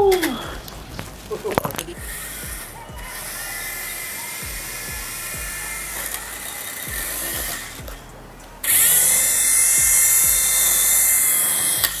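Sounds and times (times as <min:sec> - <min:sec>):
low thudding beat: 0:00.0 - 0:12.0
toy helicopter rotor whining: 0:02.0 - 0:07.8, 0:08.6 - 0:12.0.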